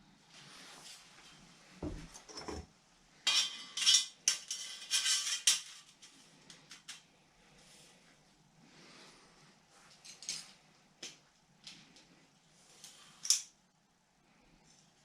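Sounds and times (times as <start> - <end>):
metal clinks and rattles: 3.3 - 7.0.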